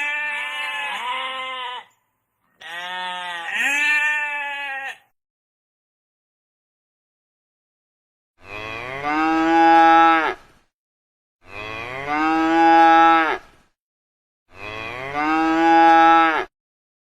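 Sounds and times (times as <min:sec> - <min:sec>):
cow mooing: 0:02.6 - 0:05.0, 0:08.4 - 0:10.4, 0:11.4 - 0:13.5, 0:14.5 - 0:16.5.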